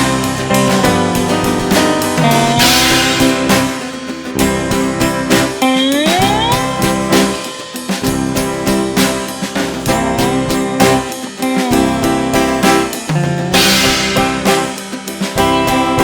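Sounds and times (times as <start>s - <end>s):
cymbal crash: 0.0s - 9.4s, 12.9s - 16.0s
drums: 0.0s - 16.0s
guitars: 0.0s - 16.0s.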